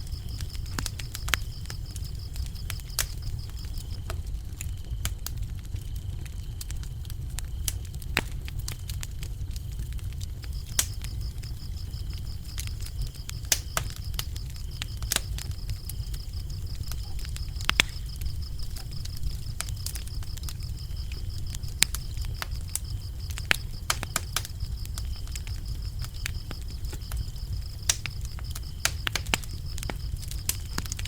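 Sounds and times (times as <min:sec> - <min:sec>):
crickets chirping: 0:00.0 - 0:05.0, 0:05.7 - 0:31.0
wood fire crackling and popping: 0:00.0 - 0:31.0.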